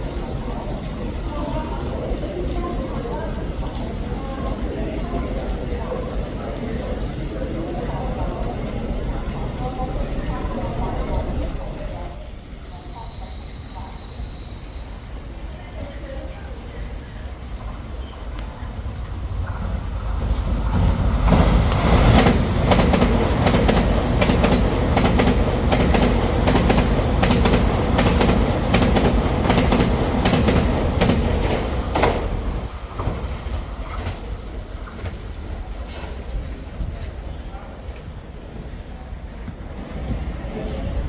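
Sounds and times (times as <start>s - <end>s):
train passing at speed: 0.0s - 41.0s
wheel clacks over rail joints: 16.9s - 36.5s.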